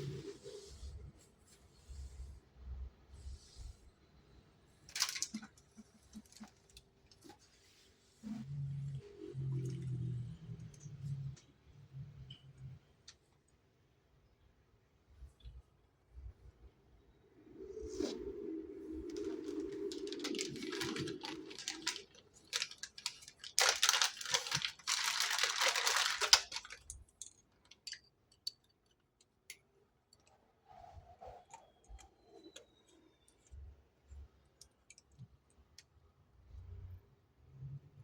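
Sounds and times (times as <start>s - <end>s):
packaging tearing and crinkling: 4.9s - 5.5s, 19.2s - 28.0s
small clicks and handling: 4.9s - 7.4s.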